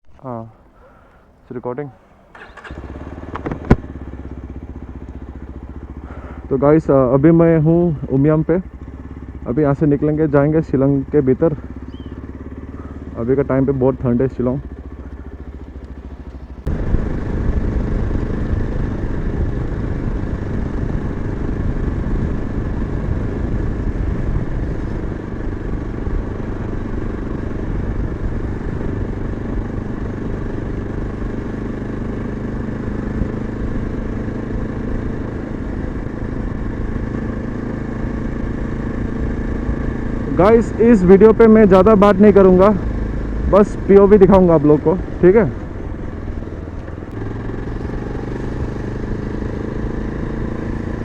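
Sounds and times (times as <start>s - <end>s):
motorcycle engine: 0.1s - 51.0s
road noise rushing: 0.2s - 51.0s.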